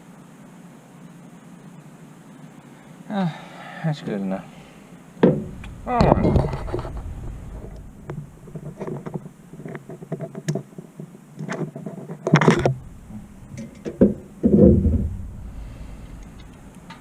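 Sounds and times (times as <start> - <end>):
tools clattering: 12.4 - 15.4.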